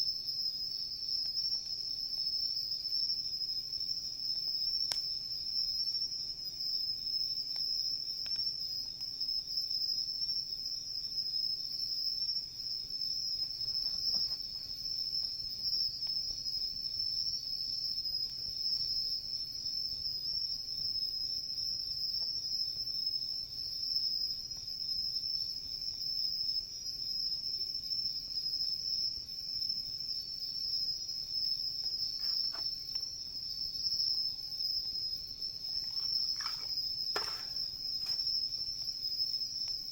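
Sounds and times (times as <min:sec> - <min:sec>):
crickets chirring: 0:00.0 - 0:39.9
campfire crackling: 0:31.6 - 0:33.4, 0:35.4 - 0:39.0.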